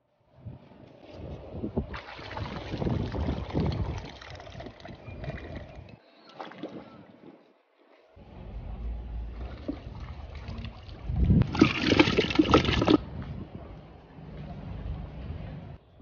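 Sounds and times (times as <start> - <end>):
water sloshing and splashing: 1.0 - 13.0.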